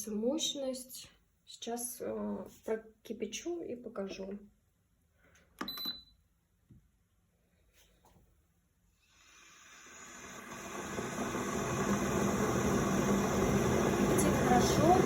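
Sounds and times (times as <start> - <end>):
electric kettle hissing: 9.0 - 15.0.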